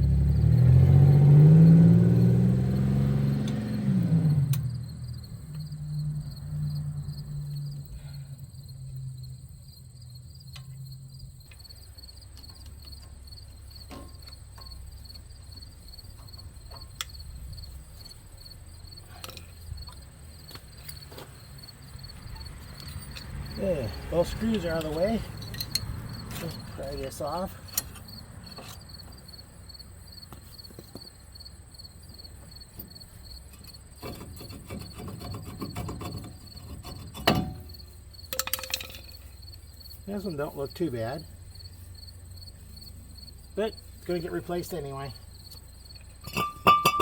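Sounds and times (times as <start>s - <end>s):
vehicle engine pulling away: 0.0s - 11.0s, 18.4s - 30.0s, 39.2s - 46.3s
crickets chirping: 0.0s - 47.0s
hand tools clicking: 24.4s - 26.7s, 38.3s - 39.2s.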